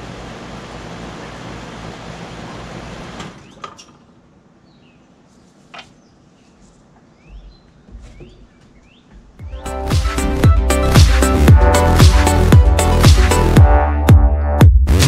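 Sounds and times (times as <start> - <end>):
air conditioner hum and fan: 0.0 - 9.4
faint bird chirps: 4.7 - 9.2.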